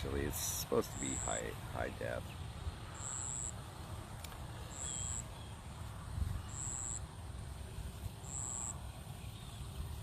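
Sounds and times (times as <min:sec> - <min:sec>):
insect buzzing: 0:02.8 - 0:03.7, 0:06.4 - 0:07.1, 0:08.2 - 0:08.9.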